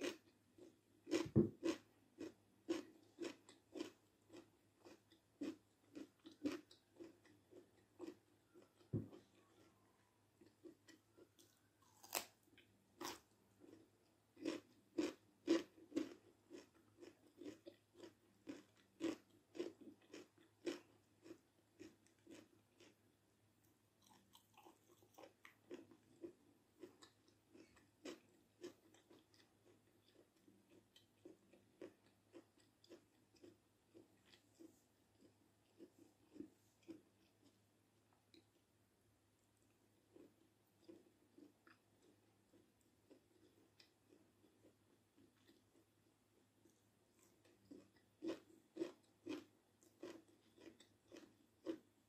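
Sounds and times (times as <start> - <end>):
cucumber crunching: 1.1 - 9.8, 10.6 - 22.9, 47.2 - 51.8.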